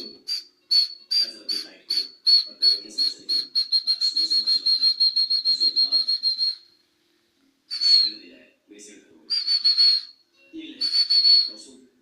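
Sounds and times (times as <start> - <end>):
cockatiel whistled chirps: 0.0 - 6.8, 7.7 - 8.3, 9.3 - 10.2, 10.8 - 11.7.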